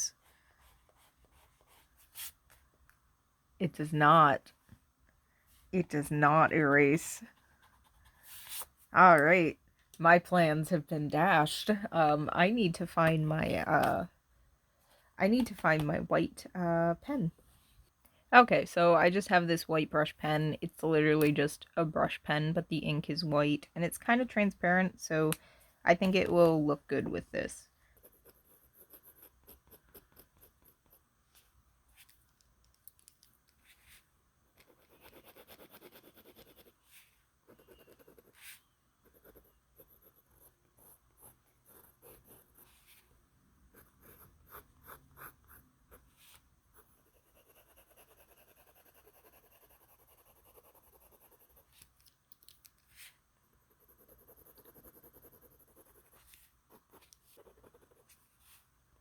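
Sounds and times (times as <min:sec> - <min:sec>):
brush pen scratching on paper: 0:00.2 - 0:02.6, 0:07.2 - 0:09.4, 0:27.9 - 0:32.2, 0:33.6 - 0:52.1, 0:52.8 - 0:58.7.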